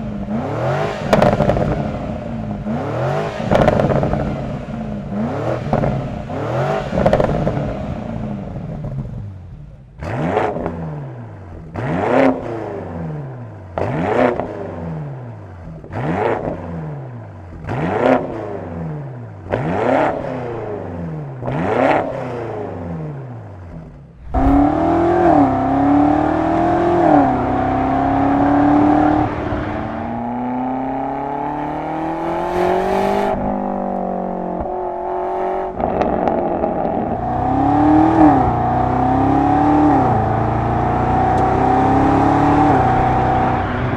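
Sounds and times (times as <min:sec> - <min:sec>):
car engine revving: 0:00.0 - 0:09.1, 0:17.4 - 0:43.9
car engine accelerating through gears: 0:00.0 - 0:09.4, 0:10.0 - 0:43.9.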